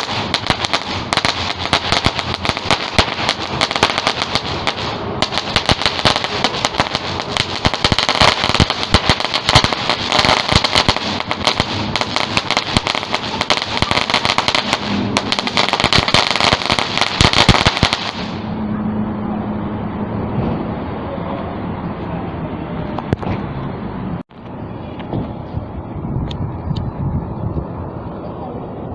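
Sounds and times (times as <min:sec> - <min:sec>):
firecrackers popping: 0:00.0 - 0:18.6.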